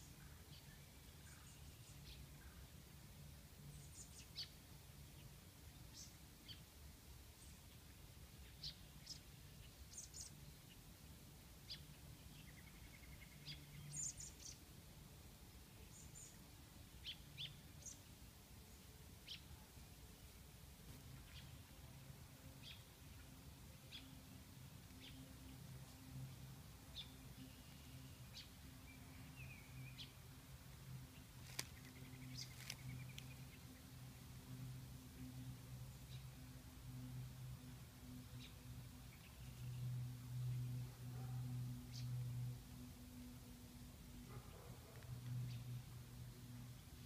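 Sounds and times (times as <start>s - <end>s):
steady low hum: 0.0s - 47.0s
small birds chirping: 3.6s - 6.8s, 7.4s - 14.7s, 15.8s - 20.0s, 20.9s - 34.6s.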